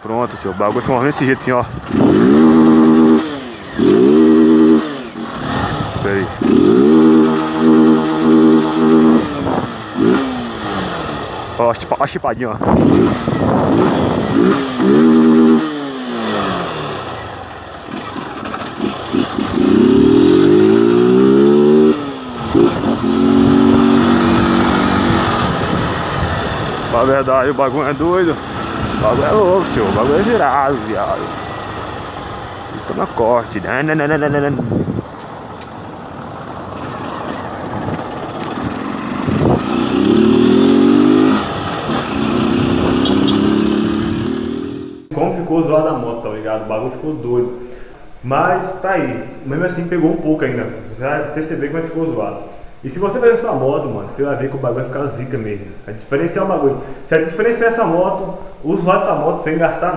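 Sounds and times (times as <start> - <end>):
small motorcycle engine revving: 0.0 - 45.1.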